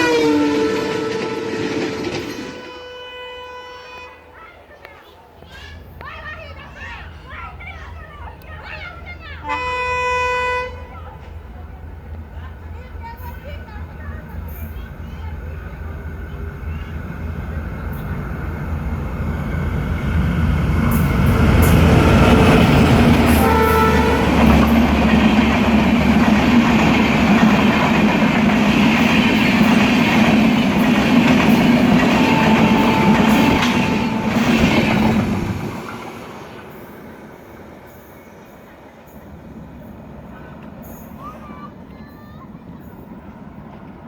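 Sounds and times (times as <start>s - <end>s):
train wheels rumbling on rails: 0.0s - 3.0s, 5.0s - 44.0s
train horn blast: 0.0s - 4.4s, 9.4s - 11.2s, 20.9s - 25.8s, 31.4s - 35.4s.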